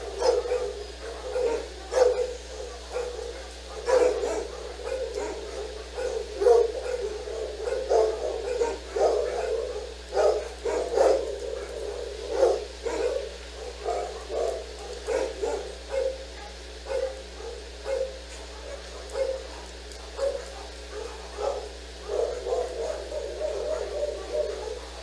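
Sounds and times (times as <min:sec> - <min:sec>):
dog barking: 0:00.0 - 0:25.0.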